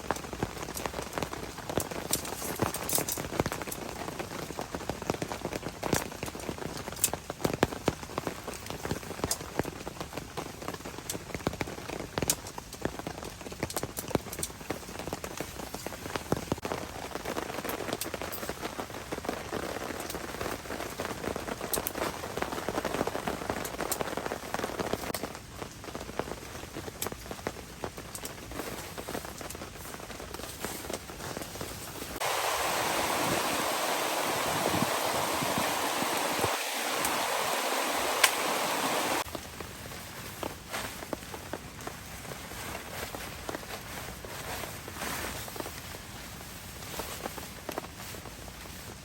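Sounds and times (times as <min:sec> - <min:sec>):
rain drops tapping on a surface: 0:00.0 - 0:49.0
loud even hiss: 0:32.0 - 0:39.3.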